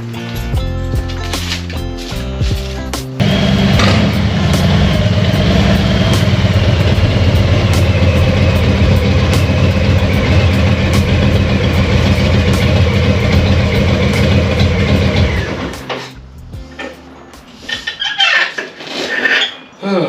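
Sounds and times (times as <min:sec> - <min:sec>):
motorcycle engine idling: 0:03.2 - 0:15.8.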